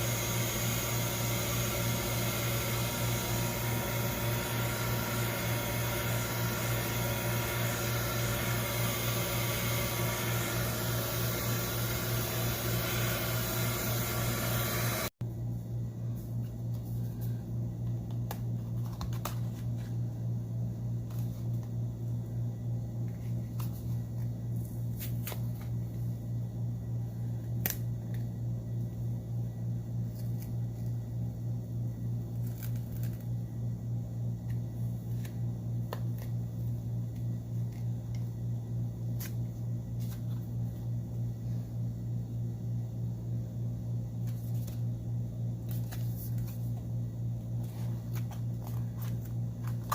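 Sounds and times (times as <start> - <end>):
machine humming: 0.0 - 15.2.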